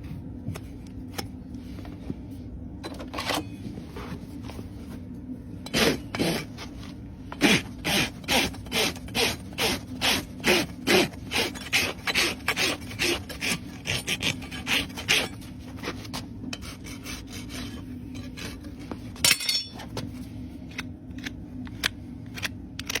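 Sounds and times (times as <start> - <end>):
rasp filing a hoof: 7.4 - 19.0.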